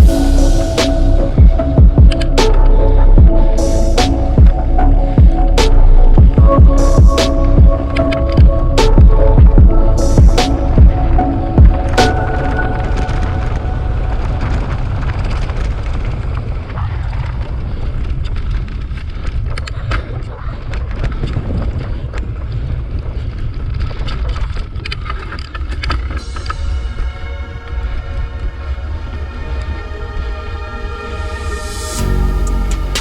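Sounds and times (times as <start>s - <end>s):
music: 0.0s - 15.8s, 26.1s - 33.0s
wind buffeting microphone: 0.0s - 30.4s
bike clicks and rattles: 14.9s - 26.6s.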